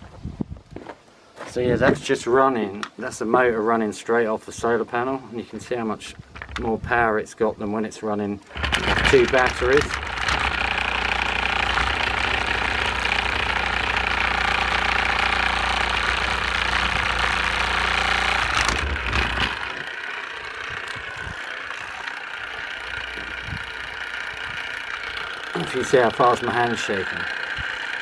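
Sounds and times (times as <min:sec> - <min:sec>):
low hum: 0:08.5 - 0:28.0
motor whirring: 0:08.5 - 0:28.0.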